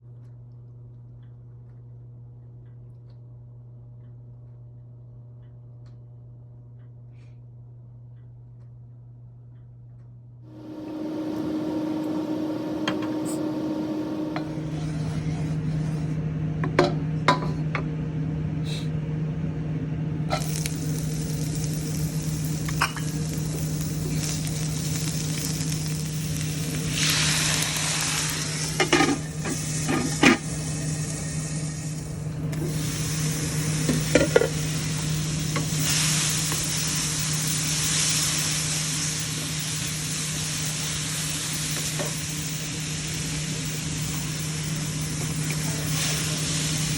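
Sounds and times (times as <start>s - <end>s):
steady low hum: 0.1s - 46.9s
food sizzling in a hot pan: 10.5s - 15.5s, 20.3s - 46.9s.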